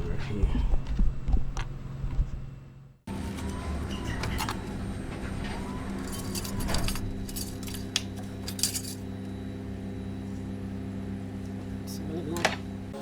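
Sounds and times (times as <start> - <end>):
steady low hum: 0.0 - 13.0
small parts clinking and rattling: 6.0 - 9.1.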